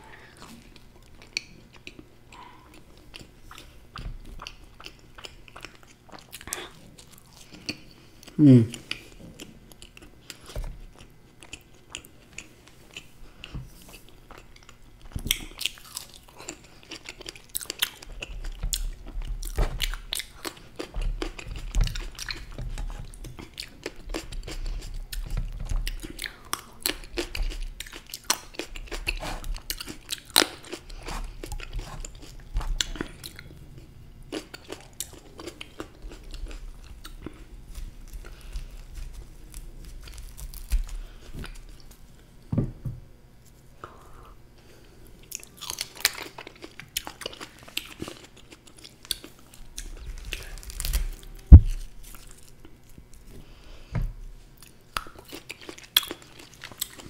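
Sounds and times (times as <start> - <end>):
person chewing crunchy food: 0.0 - 42.4, 43.8 - 53.6, 54.2 - 57.0.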